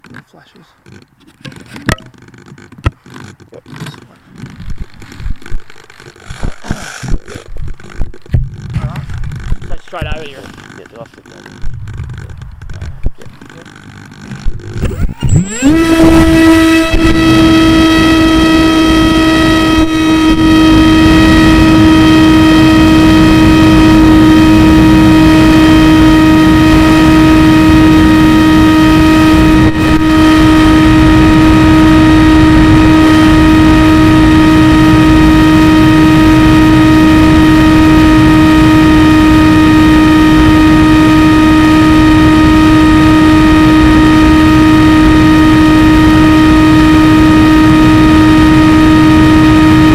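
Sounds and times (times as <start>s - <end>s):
model aircraft motor whine: 0.8s - 49.9s.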